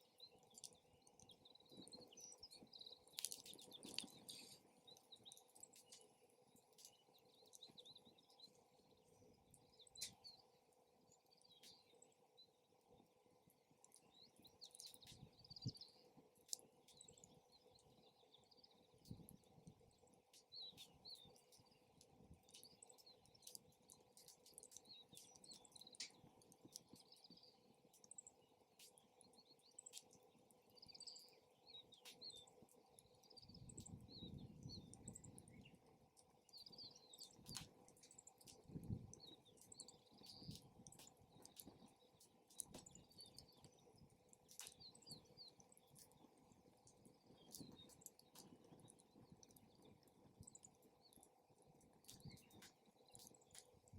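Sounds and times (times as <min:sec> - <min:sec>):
campfire crackling and popping: 0:00.0 - 0:53.9
small birds chirping: 0:00.0 - 0:53.9
wind buffeting microphone: 0:38.6 - 0:39.2.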